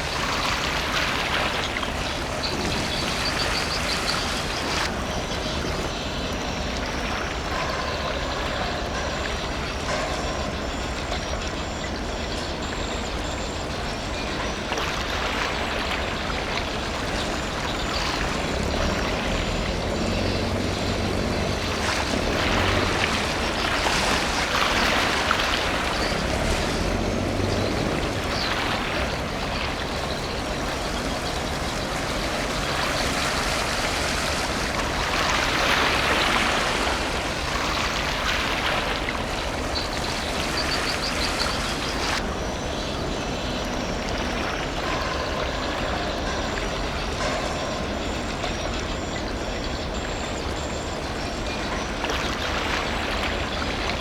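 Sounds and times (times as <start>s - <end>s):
low engine hum: 0.0s - 54.0s
passing traffic: 16.8s - 43.1s.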